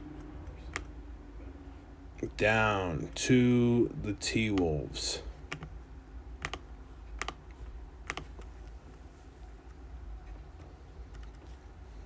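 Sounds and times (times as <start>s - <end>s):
faint low hum: 0.0s - 12.0s
computer keyboard keystrokes: 4.5s - 4.7s, 5.5s - 5.7s, 6.4s - 8.5s, 10.6s - 11.5s.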